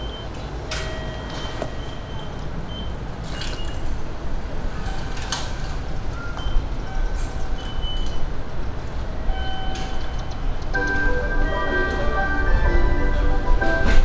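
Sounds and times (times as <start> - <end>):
electric train rumbling: 0.0 - 14.0
wheel squeals: 9.1 - 10.6.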